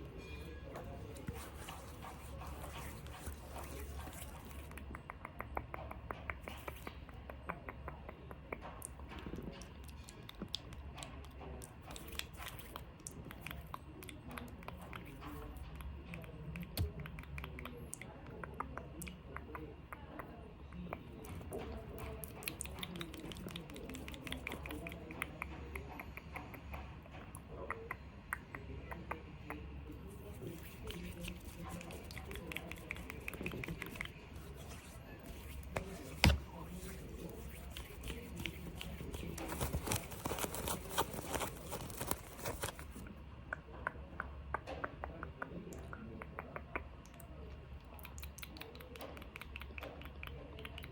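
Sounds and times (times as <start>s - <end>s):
small clicks and crackles: 30.3s - 43.1s.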